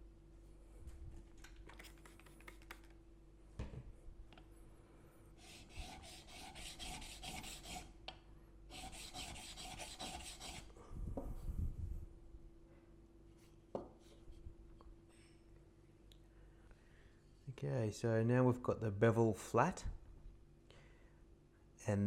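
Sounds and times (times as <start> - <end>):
chisel rasping on sharpening plate: 5.4 - 7.9, 8.7 - 10.7.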